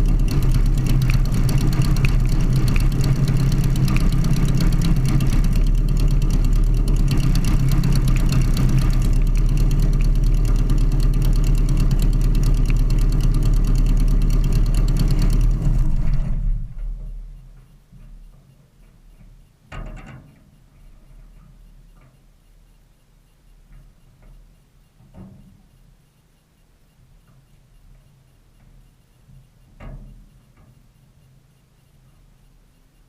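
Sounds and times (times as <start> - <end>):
light aircraft engine droning: 0.0 - 17.6.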